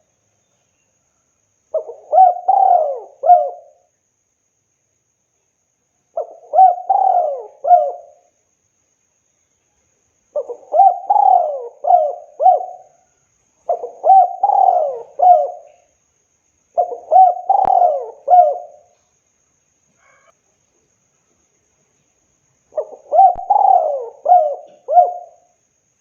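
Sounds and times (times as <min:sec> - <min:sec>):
dove cooing: 0:01.8 - 0:03.8, 0:06.2 - 0:08.2, 0:10.4 - 0:13.0, 0:13.7 - 0:15.9, 0:16.8 - 0:18.9, 0:22.8 - 0:25.5.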